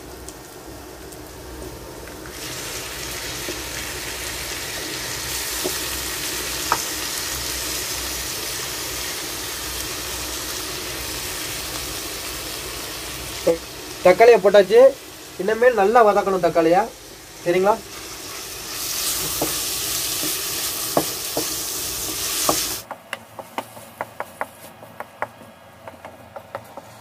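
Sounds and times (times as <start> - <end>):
oil sizzling in a frying pan: 0.0 - 22.9.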